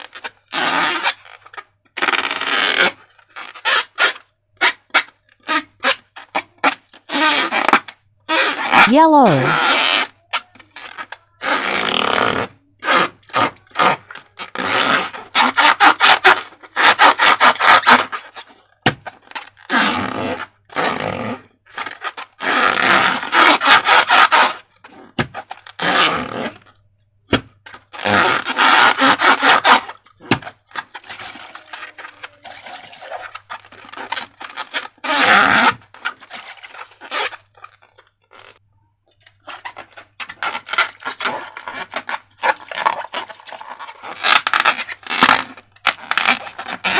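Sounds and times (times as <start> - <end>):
slime crackling and scraping: 27.7 - 46.9.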